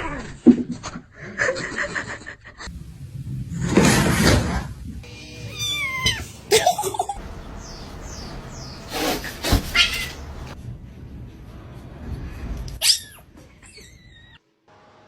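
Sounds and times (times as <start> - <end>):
short noisy outbursts: 7.4 - 10.6.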